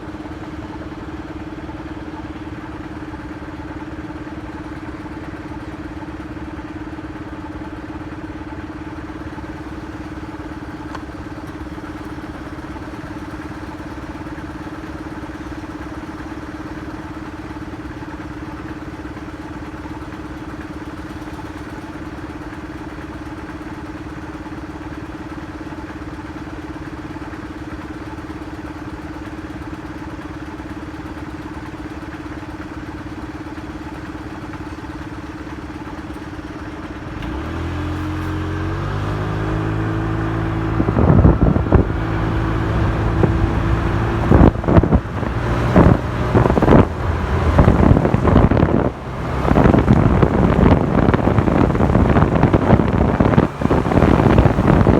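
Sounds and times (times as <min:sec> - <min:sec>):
motorcycle engine: 0:00.0 - 0:54.9
wind buffeting microphone: 0:40.5 - 0:54.9.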